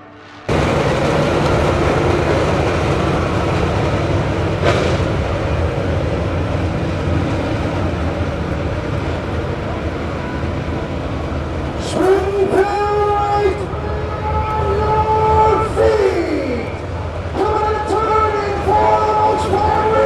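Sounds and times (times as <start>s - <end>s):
sharp clatter: 0.5s - 10.9s
vehicle rumble: 0.5s - 20.0s.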